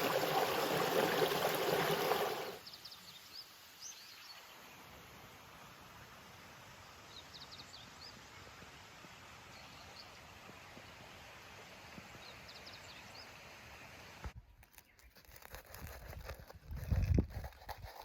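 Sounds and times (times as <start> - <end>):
songbird singing: 2.6 - 4.8.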